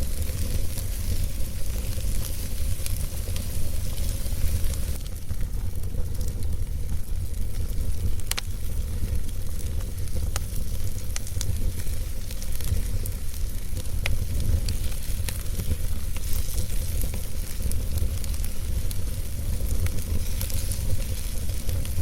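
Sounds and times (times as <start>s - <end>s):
fire rumbling and hissing: 0.0s - 22.0s
logs crackling and popping: 0.0s - 22.0s.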